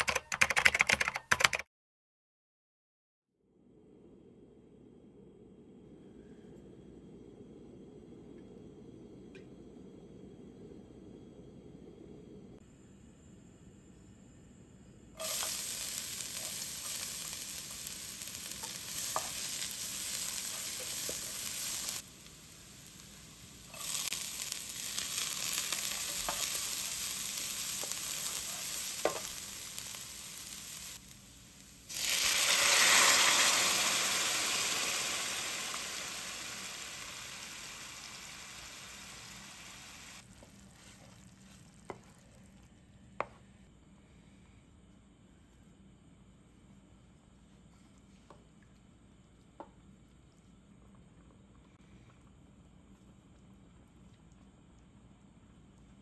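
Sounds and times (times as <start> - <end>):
garlic sizzling in oil: 15.2 - 41.9.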